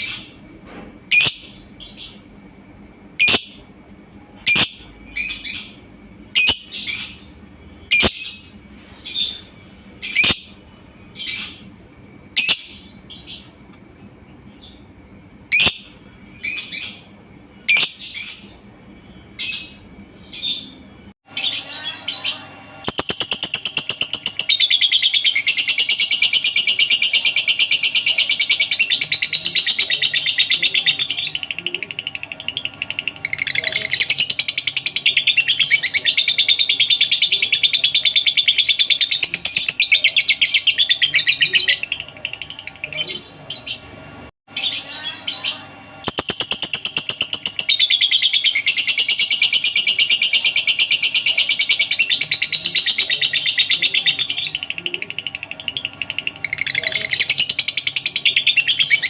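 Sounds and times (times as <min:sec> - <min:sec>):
lovebird chattering trill: 0:03.2 - 0:03.6, 0:04.4 - 0:05.8, 0:06.4 - 0:07.2, 0:07.9 - 0:08.5, 0:21.4 - 0:43.9, 0:44.6 - 0:59.0.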